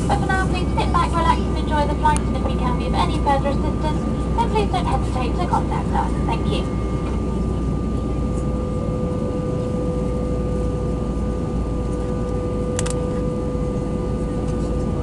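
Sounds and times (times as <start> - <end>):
airplane engines and airflow rumble: 0.0 - 15.0
steady cabin hum: 0.0 - 15.0
brief click: 12.8 - 13.0.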